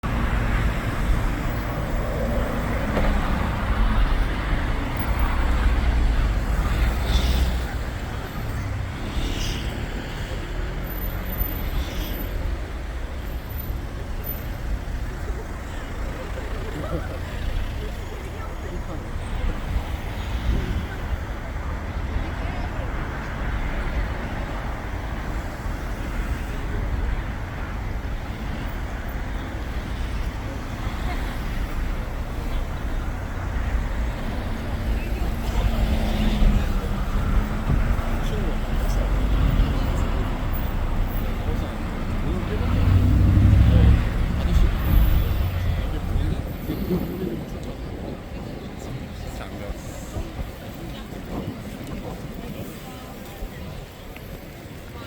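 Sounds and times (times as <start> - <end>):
minibus engine rumble: 0.0 - 55.0
road traffic: 0.0 - 55.0.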